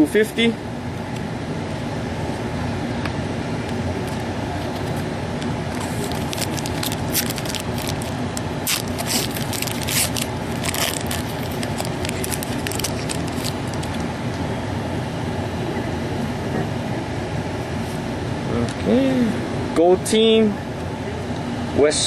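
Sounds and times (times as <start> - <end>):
steady background hum: 0.0 - 22.0
cards sliding against each other: 5.7 - 14.0
wrapper crinkling: 5.7 - 14.1.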